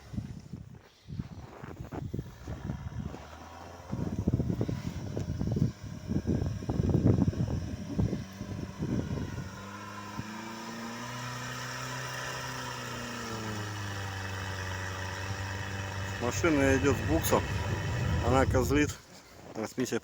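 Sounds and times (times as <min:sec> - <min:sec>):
engine working under load: 0:01.9 - 0:19.1
vehicle jolts and thumps: 0:14.5 - 0:19.0.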